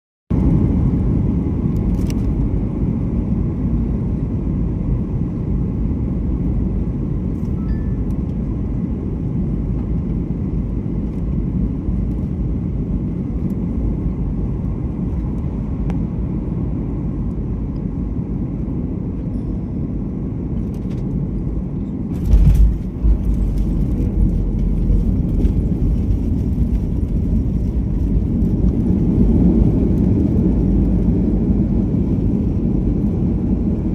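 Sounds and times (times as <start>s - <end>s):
airliner rumble: 0.3s - 33.9s
wheels touching down thump: 22.1s - 23.8s.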